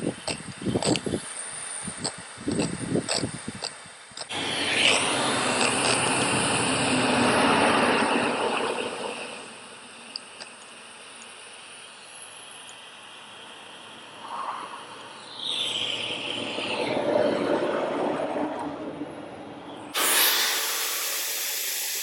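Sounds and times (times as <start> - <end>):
vehicle passing by: 4.3 - 9.8, 14.1 - 20.0.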